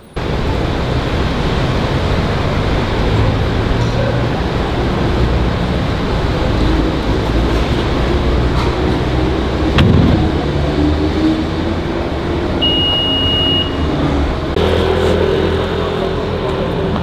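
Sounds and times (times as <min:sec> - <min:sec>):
car engines in traffic: 0:00.0 - 0:17.0
sharp knock: 0:09.8 - 0:10.6
high electronic beep: 0:12.6 - 0:13.8.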